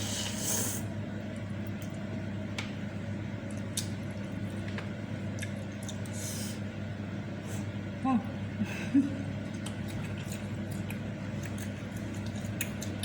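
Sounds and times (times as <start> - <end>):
steady low hum: 0.0 - 13.0
wet chewing: 9.5 - 13.0.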